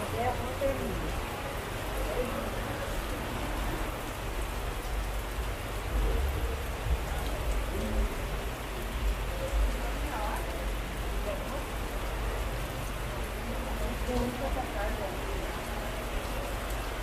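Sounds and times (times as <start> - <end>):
heavy rain pouring: 0.0 - 17.0
low rumble: 5.4 - 9.2.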